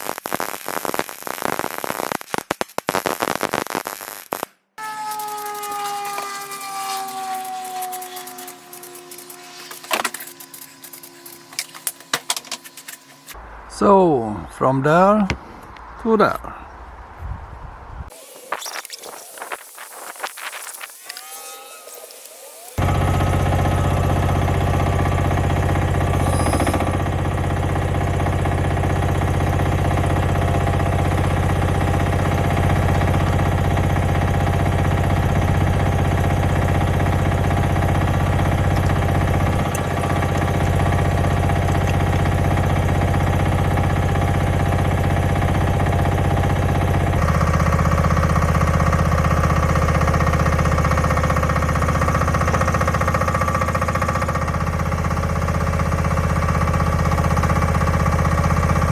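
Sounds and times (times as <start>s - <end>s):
machine motor running steadily: 5.0s - 13.4s, 20.8s - 58.9s.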